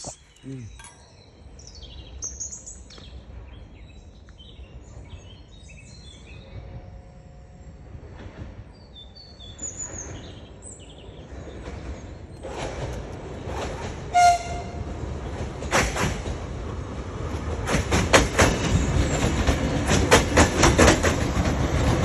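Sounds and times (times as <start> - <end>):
birds chirping: 0.0 - 8.0, 8.6 - 13.5.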